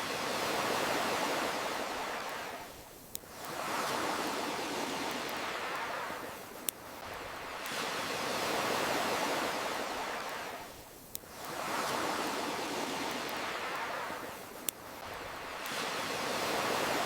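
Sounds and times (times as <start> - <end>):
ocean waves washing in: 0.0 - 17.0.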